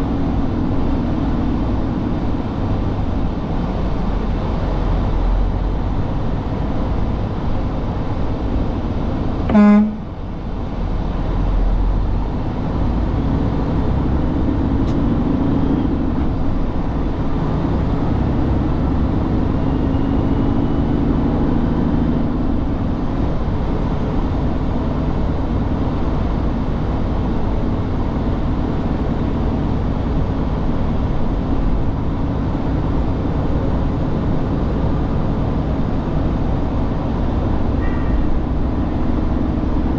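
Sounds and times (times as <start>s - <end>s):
truck engine and road rumble: 0.0s - 39.9s
short horn honk: 9.5s - 10.1s, 37.8s - 38.3s.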